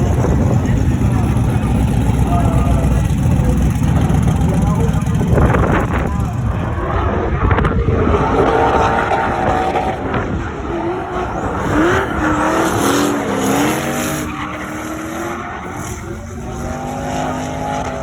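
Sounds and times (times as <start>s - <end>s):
car engine revving hard: 0.0s - 18.0s
tyres squealing and skidding: 8.3s - 18.0s.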